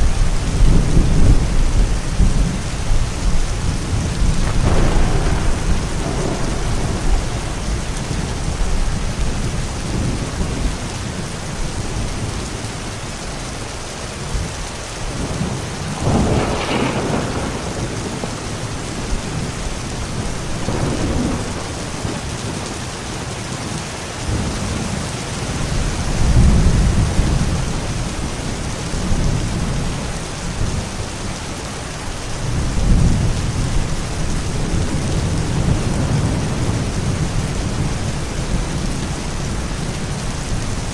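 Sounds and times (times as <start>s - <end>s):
rolling thunder: 0.0s - 12.9s, 14.3s - 31.3s, 32.4s - 40.9s
steady rain falling: 0.0s - 40.9s
sharp thunder crack: 3.9s - 10.2s, 15.8s - 19.6s, 20.4s - 22.3s.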